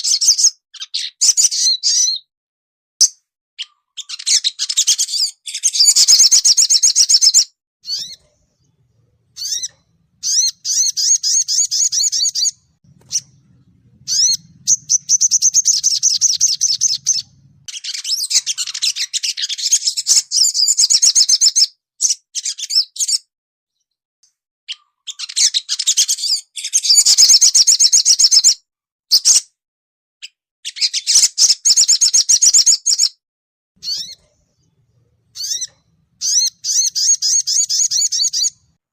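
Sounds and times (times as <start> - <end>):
songbird twittering trills: 3.0 - 23.2, 33.8 - 38.8.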